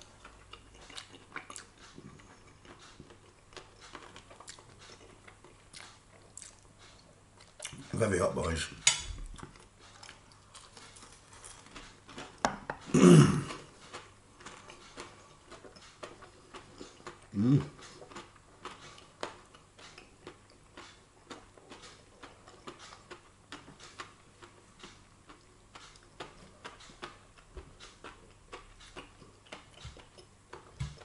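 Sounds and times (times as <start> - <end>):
person chewing food: 0.0 - 8.0, 9.2 - 31.0
person murmuring: 17.3 - 17.8.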